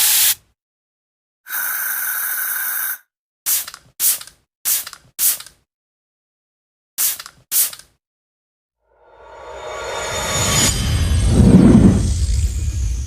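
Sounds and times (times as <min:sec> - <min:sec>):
firework hissing: 0:01.5 - 0:03.0.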